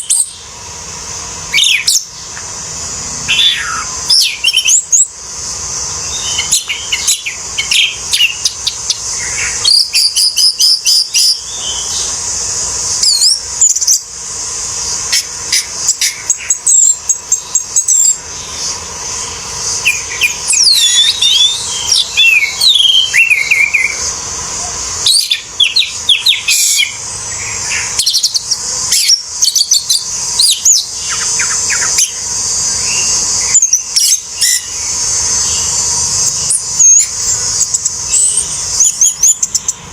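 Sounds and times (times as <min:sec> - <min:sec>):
high insect-like hiss: 0:00.0 - 0:39.9
bird singing whistles and chirps: 0:01.5 - 0:02.4, 0:03.3 - 0:05.1, 0:06.0 - 0:12.2, 0:12.9 - 0:14.0, 0:15.1 - 0:24.1, 0:25.0 - 0:39.8.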